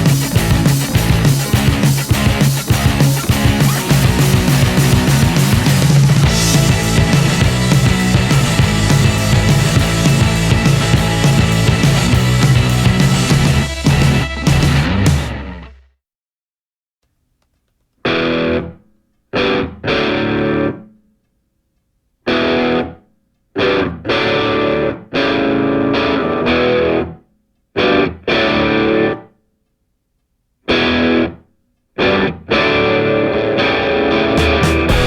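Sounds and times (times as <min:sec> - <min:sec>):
distorted electric guitar riff: 0:00.0 - 0:15.9, 0:18.0 - 0:18.8, 0:19.4 - 0:20.8, 0:22.3 - 0:23.0, 0:23.6 - 0:27.2, 0:27.8 - 0:29.3, 0:30.7 - 0:31.4, 0:32.0 - 0:35.0.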